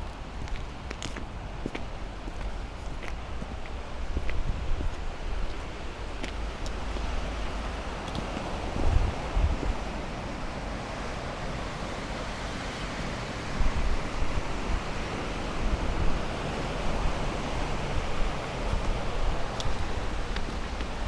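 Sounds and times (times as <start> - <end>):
wind gusting on microphone: 0.0 - 11.5, 12.1 - 21.0
sea surf: 7.2 - 21.0.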